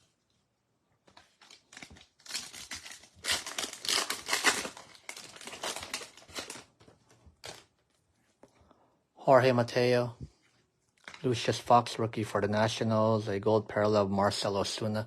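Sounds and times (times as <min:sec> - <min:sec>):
foil wrapper tearing and crinkling: 0:01.4 - 0:06.8.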